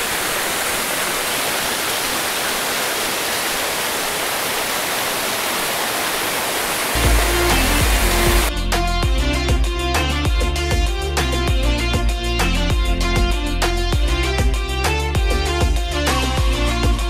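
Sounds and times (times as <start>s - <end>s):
waterfall rushing over rocks: 0.0s - 8.5s
background music: 7.0s - 17.0s.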